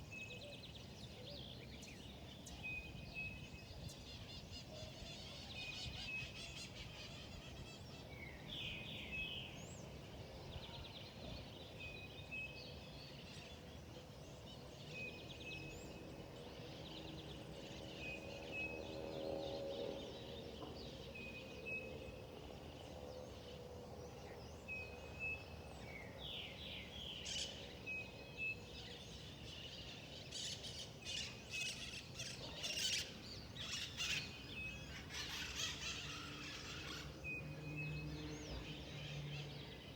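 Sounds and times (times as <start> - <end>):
birds calling and chirping: 11.1 - 39.9.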